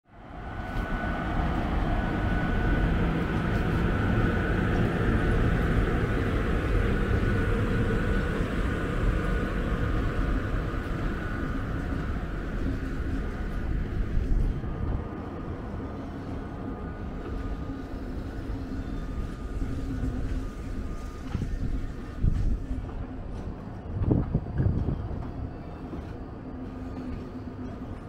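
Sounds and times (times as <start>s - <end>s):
train wheels rumbling on rails: 0.2s - 28.0s.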